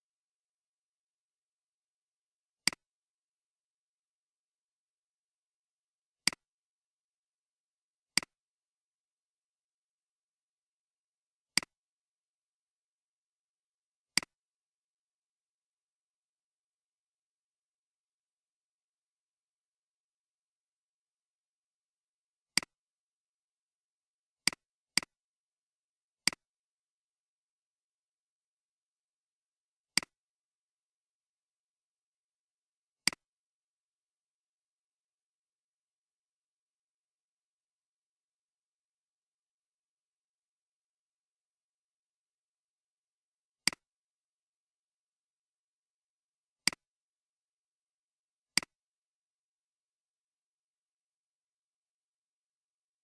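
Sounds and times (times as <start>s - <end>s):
computer mouse clicks: 2.6s - 2.9s, 24.5s - 25.1s, 26.3s - 26.5s, 33.0s - 33.3s, 43.6s - 43.9s, 46.7s - 46.9s, 48.6s - 48.8s
computer mouse button clicks: 33.1s - 33.3s, 43.6s - 43.9s, 48.6s - 48.8s.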